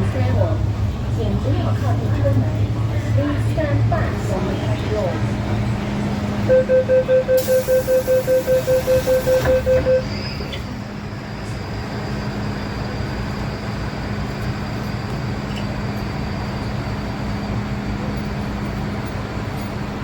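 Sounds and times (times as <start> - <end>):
train rolling rumble: 0.0 - 20.0
faint high whine: 6.5 - 10.6.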